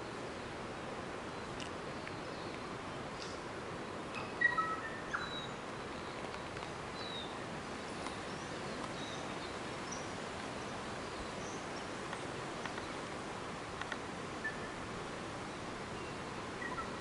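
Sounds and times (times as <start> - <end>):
forest background hiss: 0.0 - 17.0
bird chirps and whistles: 4.2 - 5.5.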